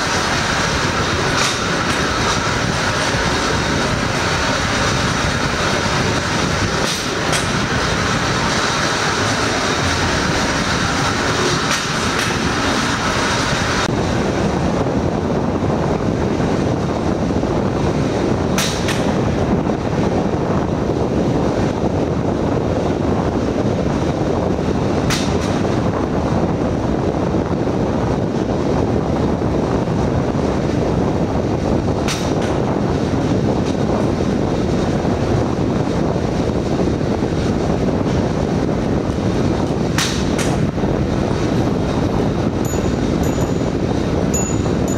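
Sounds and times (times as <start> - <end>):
wheels clacking over rail joint: 0.0 - 13.0, 18.6 - 19.2, 39.9 - 40.6, 42.6 - 44.9
steel wheels rolling on track: 0.0 - 44.9.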